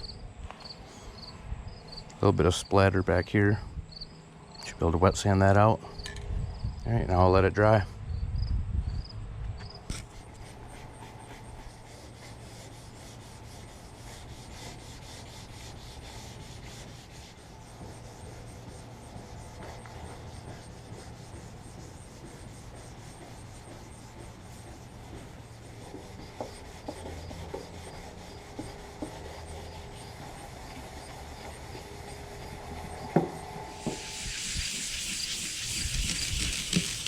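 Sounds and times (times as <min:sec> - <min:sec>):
sandpaper rubbing on metal: 0:09.9 - 0:37.0.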